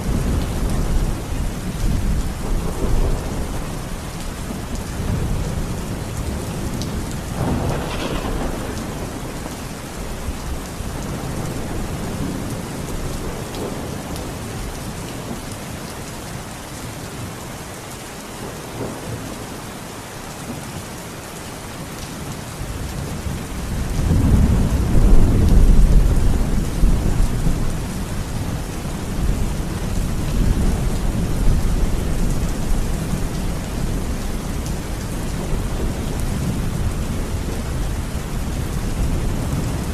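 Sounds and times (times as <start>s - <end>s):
thunder rumbling: 0.0s - 14.4s, 23.3s - 39.9s
steady rain falling: 0.0s - 39.9s.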